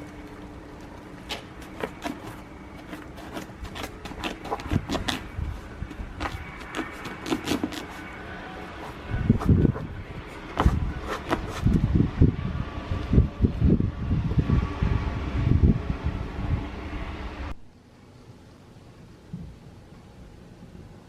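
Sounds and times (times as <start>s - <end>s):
snow crunching: 0.0s - 11.8s
low outdoor rumble: 0.0s - 21.0s.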